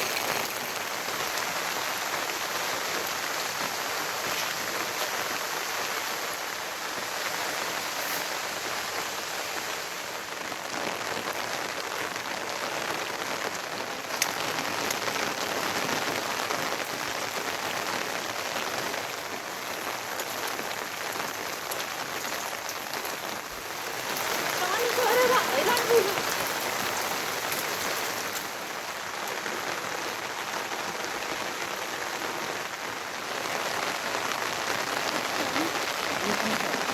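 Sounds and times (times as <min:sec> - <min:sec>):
rain pattering: 0:00.0 - 0:36.9.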